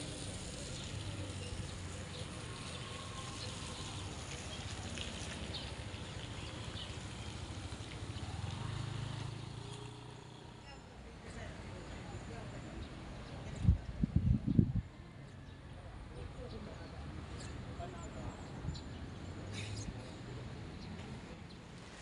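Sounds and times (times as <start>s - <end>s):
rain hiss: 0.0s - 10.2s
faint rain patters: 0.0s - 10.6s.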